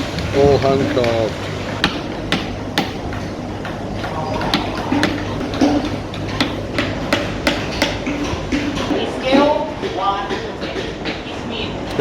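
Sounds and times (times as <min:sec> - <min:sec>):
mallets striking chisels into wood: 0:01.8 - 0:09.0.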